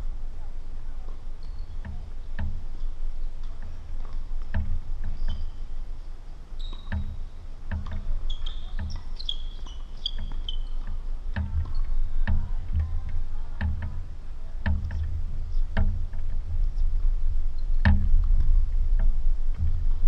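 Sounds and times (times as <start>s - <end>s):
high squeaks: 6.6s - 7.4s, 8.1s - 12.1s.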